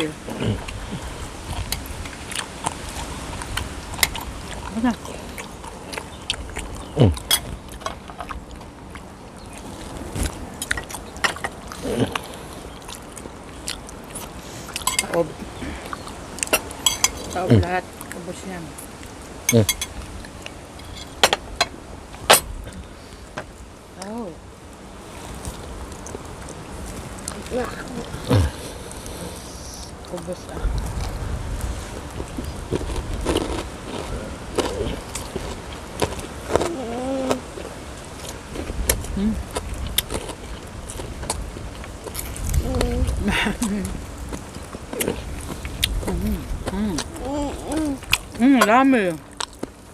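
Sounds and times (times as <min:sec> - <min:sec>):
biting and chewing: 0:00.0 - 0:18.2, 0:18.8 - 0:23.6, 0:24.8 - 0:49.9
person humming: 0:36.5 - 0:37.5, 0:42.6 - 0:44.0, 0:46.1 - 0:48.0
short voice sound: 0:47.0 - 0:48.0.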